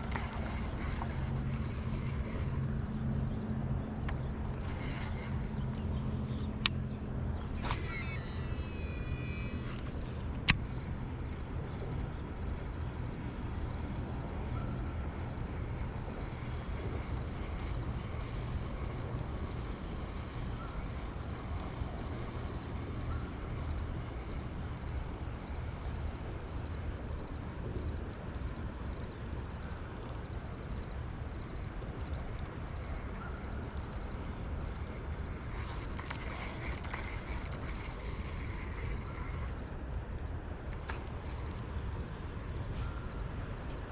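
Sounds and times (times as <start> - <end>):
low outdoor rumble: 0.0 - 43.9.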